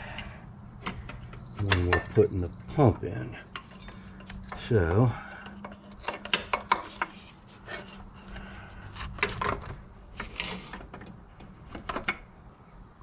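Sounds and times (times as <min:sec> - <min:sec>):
short metal knocks: 0:00.8 - 0:07.9
metal parts clinking and scraping: 0:03.4 - 0:11.1.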